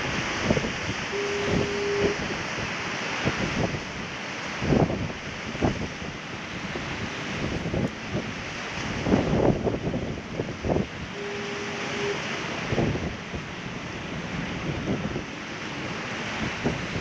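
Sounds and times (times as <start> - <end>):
surf washing against rocks: 0.0 - 17.0
wind buffeting microphone: 0.0 - 17.0
faint steady tone: 1.1 - 2.3, 11.1 - 12.7.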